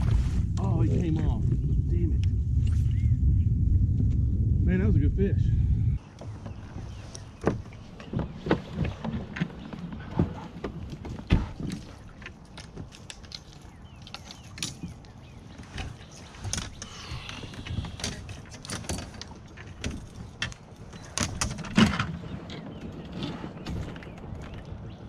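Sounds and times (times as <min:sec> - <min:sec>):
fishing gear clicking and knocking: 0:06.2 - 0:24.8.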